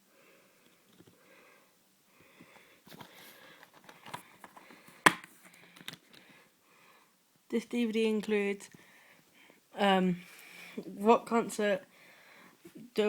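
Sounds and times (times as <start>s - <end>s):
plastic case rustling: 2.8s - 6.3s
plastic case click: 3.8s - 6.0s.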